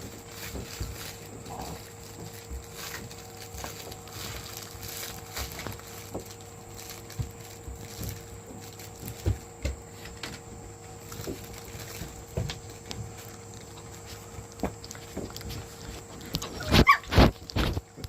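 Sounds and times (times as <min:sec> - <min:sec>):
paw patter and thumps: 0:00.0 - 0:18.0
puppy squeaks: 0:16.5 - 0:17.1.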